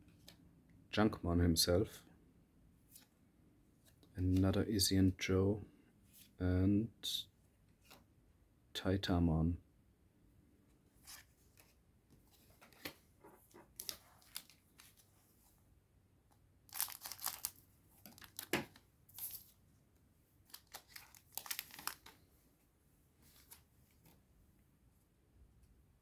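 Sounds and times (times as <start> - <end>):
foil wrapper crinkling and tearing: 16.7 - 19.4, 20.5 - 22.2.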